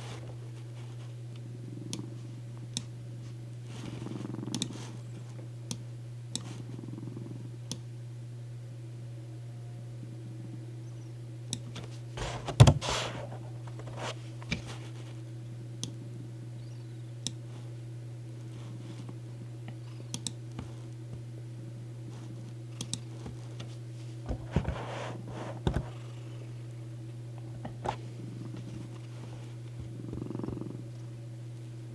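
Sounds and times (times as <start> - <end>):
cat purring: 0.0 - 2.7, 3.6 - 5.2, 6.4 - 7.6, 22.0 - 31.2
light clicks: 19.7 - 20.4, 22.8 - 23.1.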